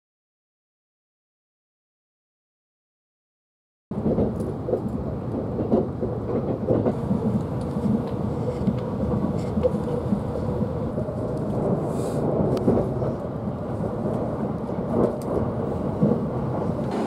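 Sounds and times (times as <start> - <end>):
train wheels rumbling on rails: 3.9 - 17.0.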